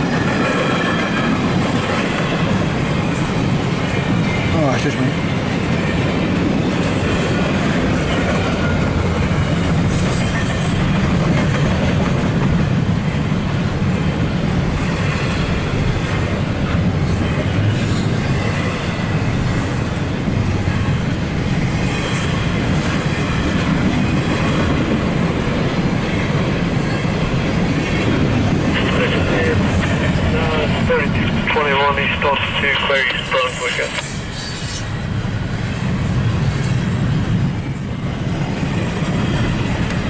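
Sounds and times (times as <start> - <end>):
freight train rolling past: 0.0 - 40.0.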